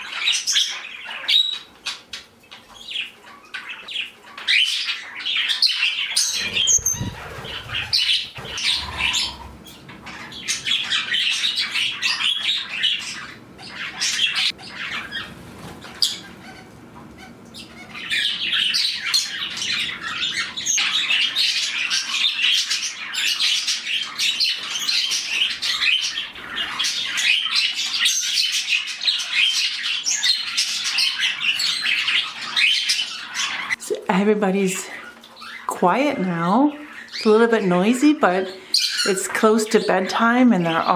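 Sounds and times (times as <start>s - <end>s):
small parrots chattering and squawking: 0.0s - 33.8s, 34.8s - 35.7s, 36.7s - 37.6s, 38.5s - 40.9s
wing flutters: 6.3s - 9.7s.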